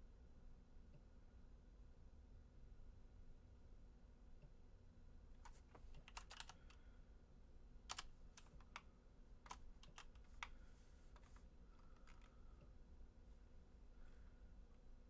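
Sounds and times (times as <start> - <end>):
keyboard and mouse clicks: 5.4 - 6.8, 7.9 - 12.4.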